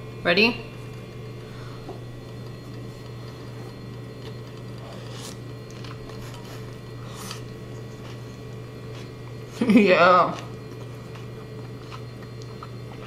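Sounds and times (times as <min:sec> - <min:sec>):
steady low hum: 0:00.0 - 0:13.0
person chewing food: 0:01.9 - 0:09.4, 0:10.4 - 0:13.0.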